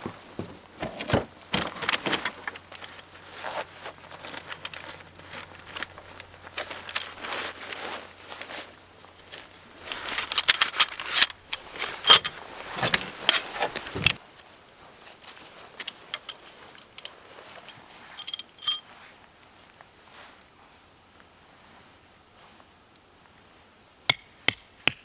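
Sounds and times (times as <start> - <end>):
camping gear rustling: 0.0 - 23.8
metallic clinks and clicks: 10.2 - 12.4, 15.8 - 18.8.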